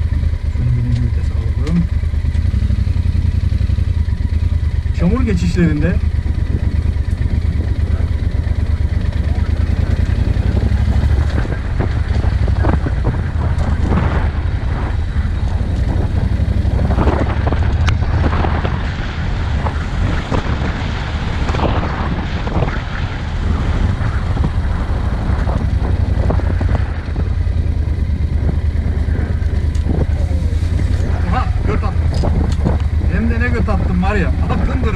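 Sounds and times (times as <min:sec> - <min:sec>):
vehicle engine running: 0:00.0 - 0:34.9
knocks and rattles from vehicle: 0:00.9 - 0:02.6, 0:05.0 - 0:19.0, 0:23.6 - 0:34.9
wind noise on microphone: 0:05.6 - 0:34.9.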